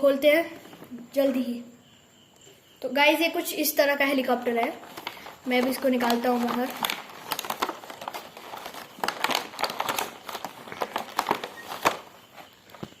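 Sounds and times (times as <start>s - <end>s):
packaging crinkling and rustling: 4.6s - 13.0s.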